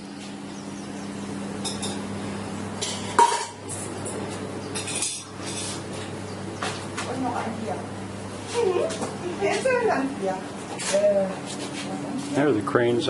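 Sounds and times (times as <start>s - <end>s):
steady low hum: 0.0s - 13.0s
dishes and cutlery clattering: 4.7s - 5.8s.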